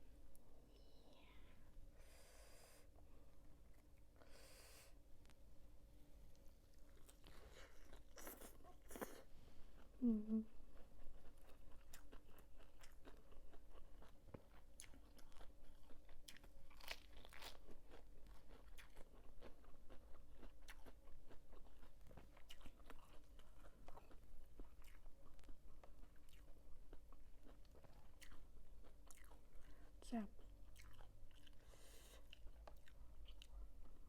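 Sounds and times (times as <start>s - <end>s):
person chewing crunchy food: 6.4s - 10.0s, 10.7s - 34.0s.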